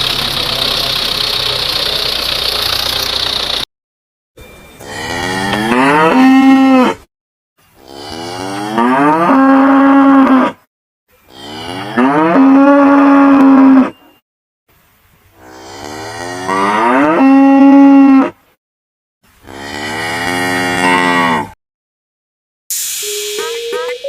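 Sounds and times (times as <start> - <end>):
cow mooing: 4.8 - 7.0, 7.8 - 10.6, 11.3 - 14.0, 15.4 - 18.4, 19.4 - 21.6.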